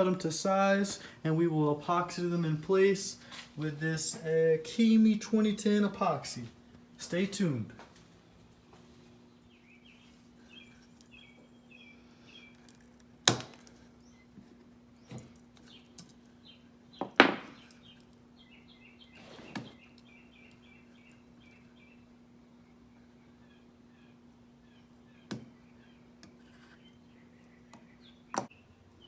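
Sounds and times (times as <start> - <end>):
faint steady hum: 0.0 - 29.0
small birds chirping: 8.7 - 12.9, 13.8 - 29.0.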